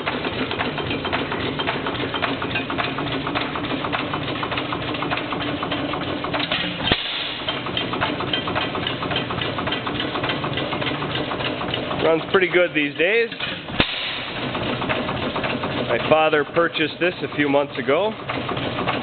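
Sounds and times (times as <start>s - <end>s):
gas engine running: 0.0s - 19.0s
rapid mechanical clicking: 0.0s - 19.0s
sharp engine knock: 13.4s - 16.4s, 18.2s - 19.0s.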